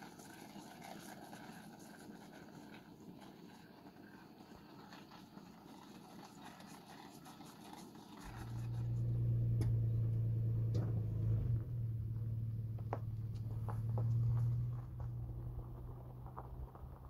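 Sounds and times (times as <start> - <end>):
faint outdoor ambience: 0.0 - 17.0
car engine idling: 8.2 - 17.0.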